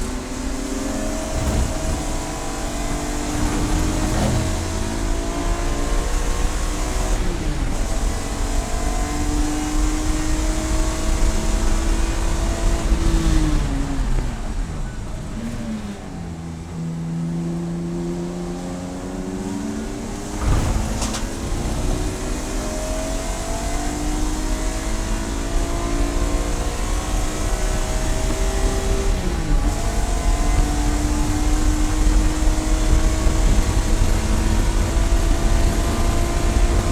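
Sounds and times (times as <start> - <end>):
race car engine revving: 0.0 - 36.9.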